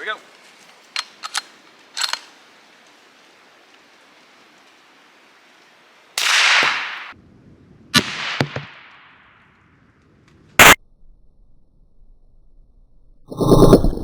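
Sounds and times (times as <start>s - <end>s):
suppressed rifle shots: 6.2s - 7.1s, 8.0s - 9.1s.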